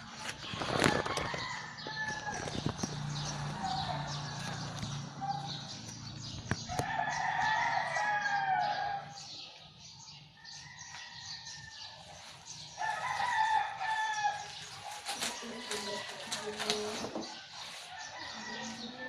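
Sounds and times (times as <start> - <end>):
rooster crowing: 6.7 - 9.2, 12.8 - 14.6, 17.9 - 19.0.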